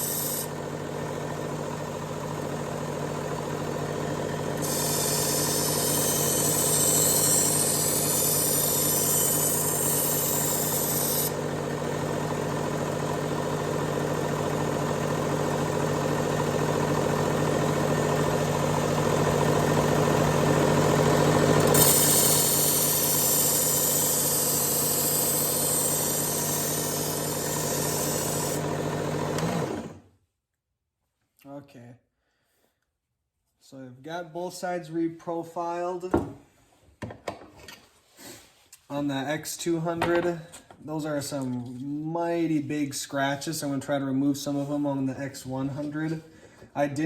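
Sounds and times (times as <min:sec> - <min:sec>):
knife grinding on belt: 0:00.0 - 0:00.5, 0:04.6 - 0:11.3, 0:21.7 - 0:28.6
belt sharpener motor hum: 0:00.0 - 0:30.0.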